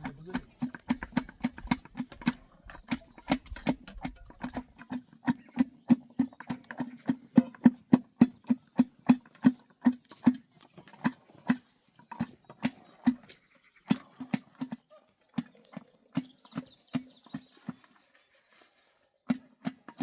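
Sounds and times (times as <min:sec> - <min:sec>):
sharp hollow knocks: 0:00.0 - 0:14.8.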